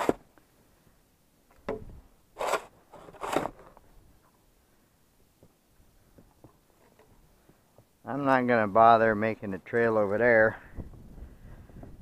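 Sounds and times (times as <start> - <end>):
snow crunching and scraping: 2.4 - 3.8.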